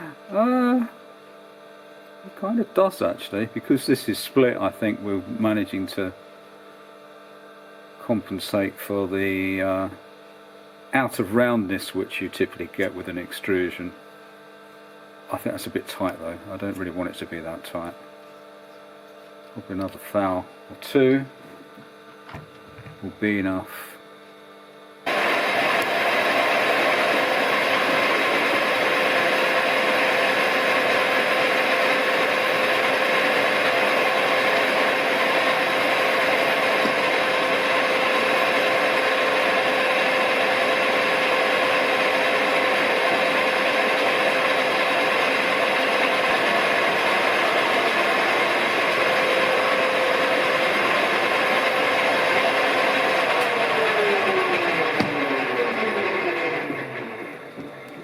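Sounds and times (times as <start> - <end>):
motor whine spinning down: 25.0 - 58.0
lathe running: 25.1 - 58.0.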